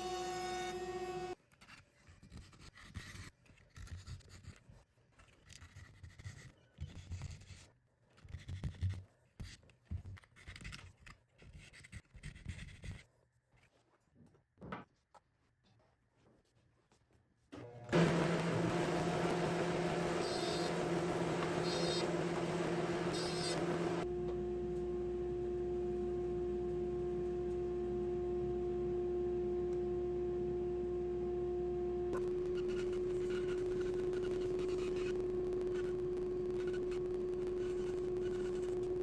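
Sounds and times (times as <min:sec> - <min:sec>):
machine humming: 0:17.6 - 0:39.0.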